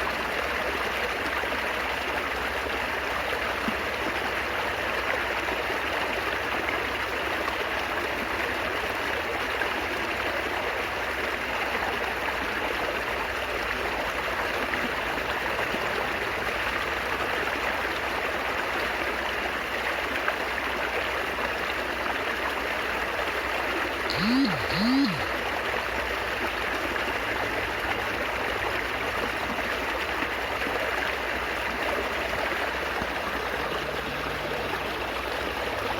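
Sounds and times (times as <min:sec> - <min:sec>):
babbling stream water: 0:00.0 - 0:35.9
short rising and falling tones: 0:24.1 - 0:25.3.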